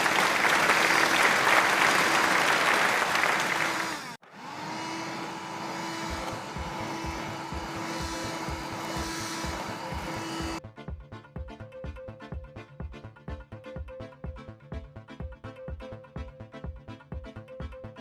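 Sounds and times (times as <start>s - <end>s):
motor whirring with hiss: 0.9s - 10.6s
low pulsing beat: 5.8s - 18.0s.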